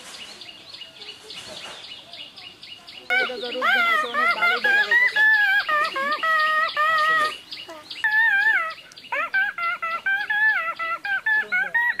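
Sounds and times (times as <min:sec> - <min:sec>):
man imitating bird calls: 0:03.1 - 0:12.0.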